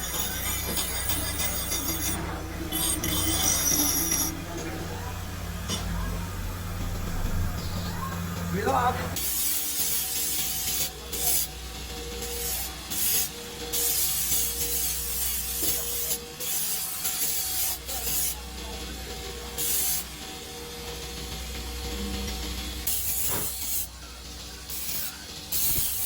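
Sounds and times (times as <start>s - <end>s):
steady machine hum: 0.0s - 9.8s, 18.5s - 25.5s.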